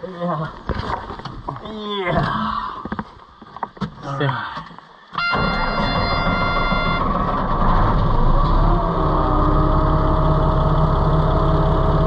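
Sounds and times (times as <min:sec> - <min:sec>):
steady beeping tone: 0:05.2 - 0:07.2
bulldozer diesel engine running: 0:05.2 - 0:12.0.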